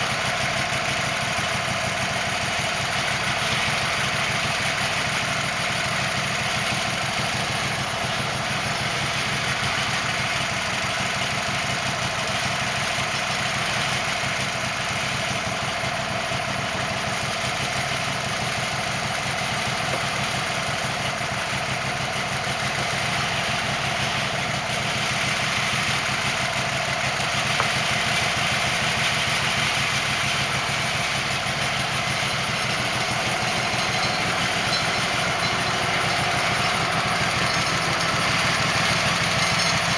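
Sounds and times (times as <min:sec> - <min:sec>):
band sawmill engine droning: 0:00.0 - 0:39.9.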